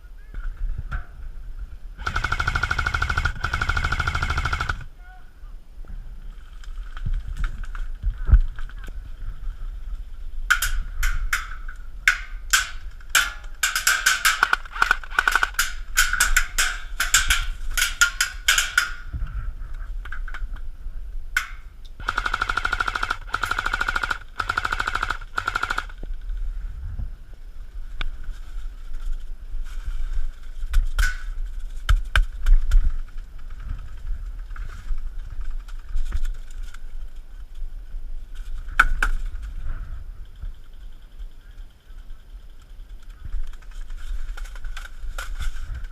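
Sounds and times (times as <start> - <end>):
airsoft guns firing: 2.0 - 4.9, 12.1 - 19.0, 21.4 - 26.0.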